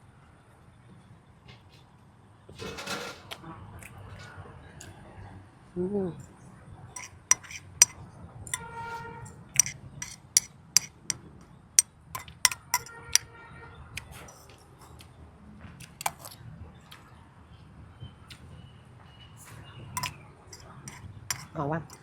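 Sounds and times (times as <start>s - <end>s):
utensils clinking against dish: 7.0s - 8.7s, 9.6s - 11.2s, 12.2s - 13.2s, 20.0s - 22.0s.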